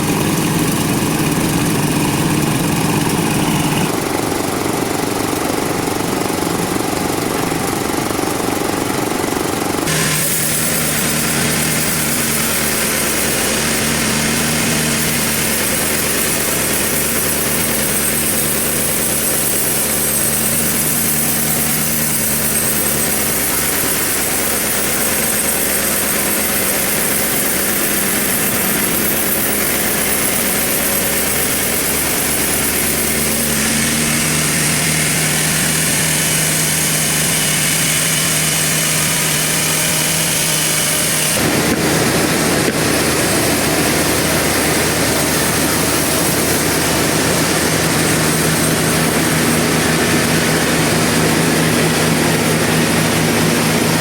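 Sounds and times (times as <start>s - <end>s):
sawmill machinery humming: 0.0s - 54.0s.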